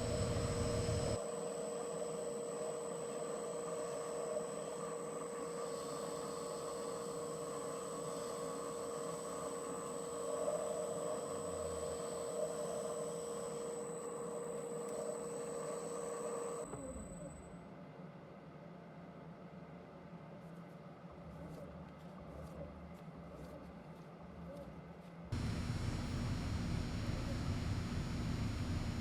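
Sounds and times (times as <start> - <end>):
metal lathe whining: 0.0 - 1.2, 25.4 - 29.0.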